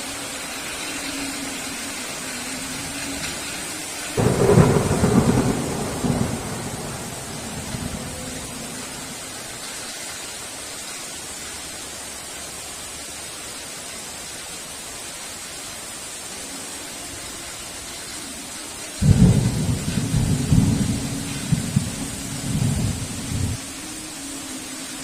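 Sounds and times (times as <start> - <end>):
heavy rain hissing: 0.0 - 25.0
loud thunder clap: 4.2 - 8.6
thunder rumbling: 4.2 - 9.6, 19.0 - 23.6.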